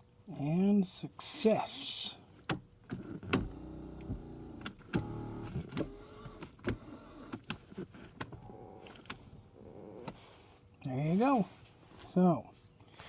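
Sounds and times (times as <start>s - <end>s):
electric seat motor running: 3.0s - 7.5s.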